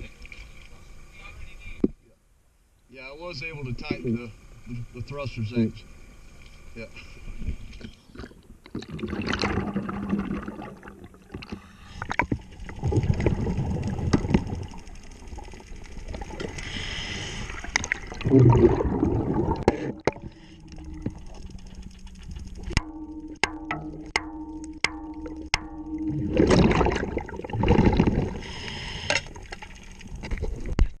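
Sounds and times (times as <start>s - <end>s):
exhaled bubbles gurgling: 8.1s - 30.9s
regulator inhale hiss: 11.5s - 12.3s, 16.6s - 17.8s, 19.8s - 21.0s, 28.3s - 29.5s.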